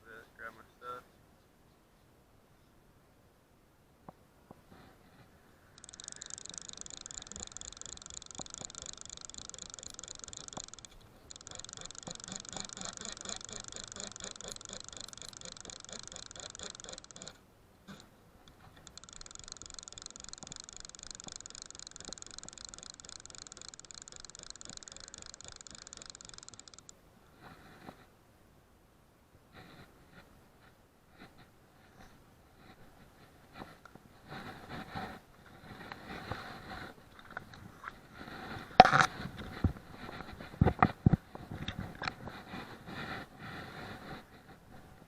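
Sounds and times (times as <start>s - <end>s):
fly reel drag ratcheting: 5.2s - 27.0s, 38.2s - 44.3s.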